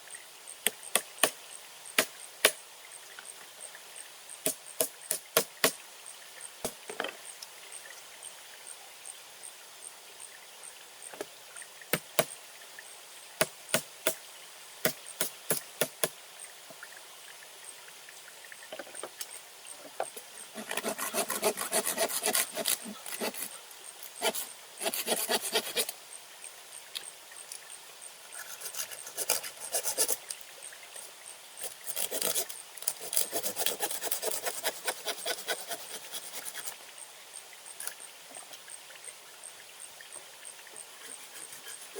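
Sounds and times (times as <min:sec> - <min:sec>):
rasping sawing or scraping: 0:20.6 - 0:23.5, 0:24.2 - 0:25.9, 0:28.4 - 0:30.2, 0:31.6 - 0:36.8, 0:41.0 - 0:41.9.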